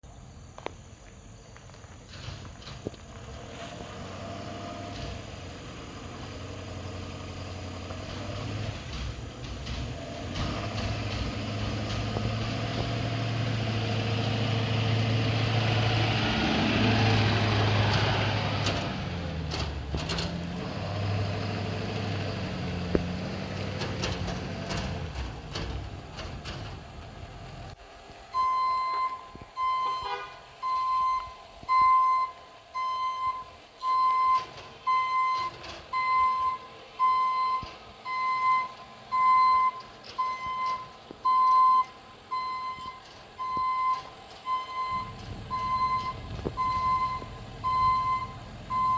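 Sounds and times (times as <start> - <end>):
truck engine running: 0.7 - 48.9
reversing alarm beeping: 28.3 - 48.9.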